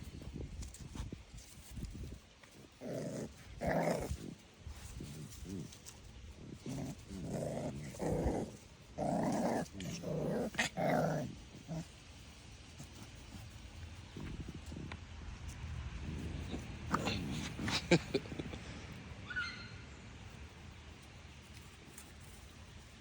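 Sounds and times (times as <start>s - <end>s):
puppy growling: 2.6s - 11.9s, 15.9s - 18.6s.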